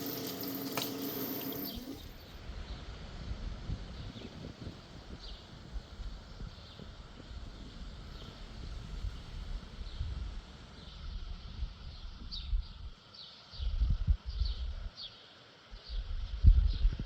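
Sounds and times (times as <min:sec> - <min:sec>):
wind buffeting microphone: 0:02.5 - 0:12.9.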